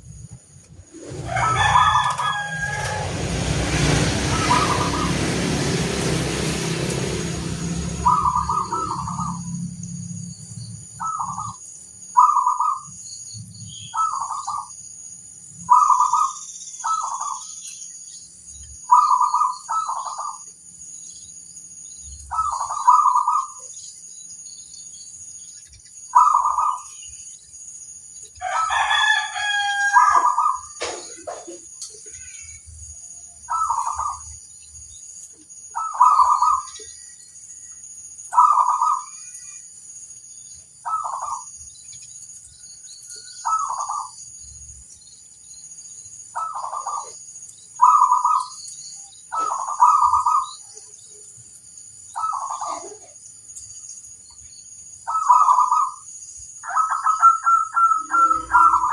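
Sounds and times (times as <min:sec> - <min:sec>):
rush of noise with low rumble: 0:00.0 - 0:11.6
dove cooing: 0:04.3 - 0:05.3, 0:07.7 - 0:09.5, 0:12.2 - 0:12.9, 0:15.7 - 0:17.4, 0:22.3 - 0:23.6, 0:35.8 - 0:36.8, 0:38.3 - 0:39.1, 0:46.4 - 0:47.2, 0:47.8 - 0:48.5, 0:49.3 - 0:50.5, 0:52.2 - 0:53.2, 0:55.1 - 0:56.0, 0:56.7 - 0:58.9.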